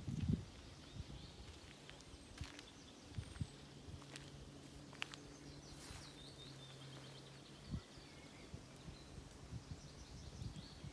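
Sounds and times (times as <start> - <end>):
small birds chirping: 0.2 - 10.9.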